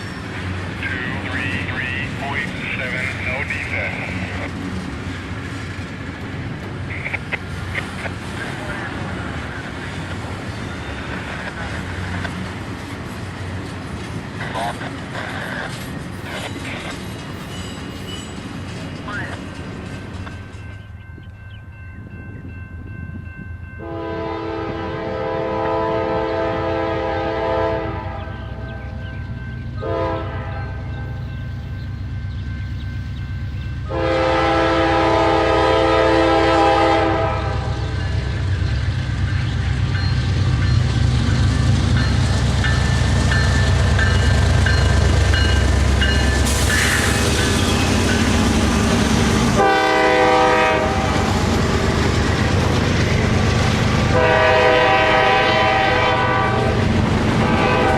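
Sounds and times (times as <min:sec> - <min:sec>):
locomotive engine rumble: 0:00.0 - 0:22.7, 0:24.2 - 0:57.9
train rolling noise: 0:00.0 - 0:57.9
locomotive air horn blasts: 0:23.8 - 0:28.4, 0:29.8 - 0:30.8, 0:33.9 - 0:37.7, 0:49.6 - 0:51.2, 0:54.1 - 0:56.8, 0:57.4 - 0:57.9.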